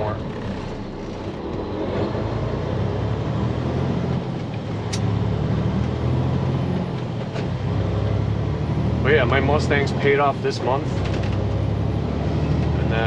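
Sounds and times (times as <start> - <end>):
truck diesel engine running: 0.0 - 13.0.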